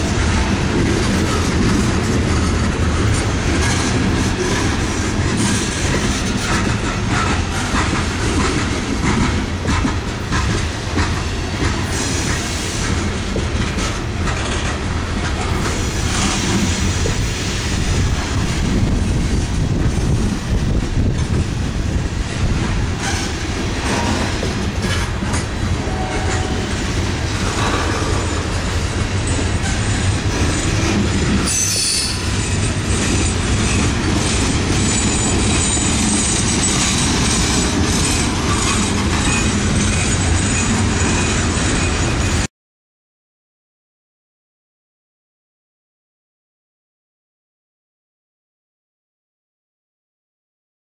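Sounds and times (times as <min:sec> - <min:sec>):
train wheels rumbling on rail: 0:00.0 - 0:42.5
wheels clacking over rail joints: 0:00.0 - 0:42.5
wheel squeal: 0:31.4 - 0:42.5.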